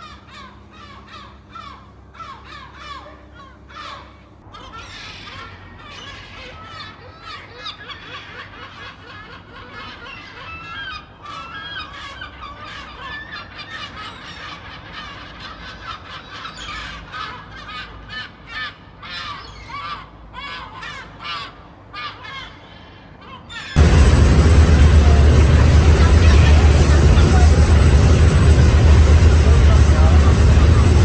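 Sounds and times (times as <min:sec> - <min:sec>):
seagulls calling: 0:00.0 - 0:31.0.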